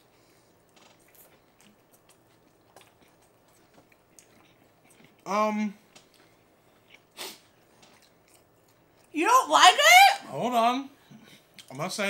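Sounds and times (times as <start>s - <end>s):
mouths chewing: 0.6s - 5.3s.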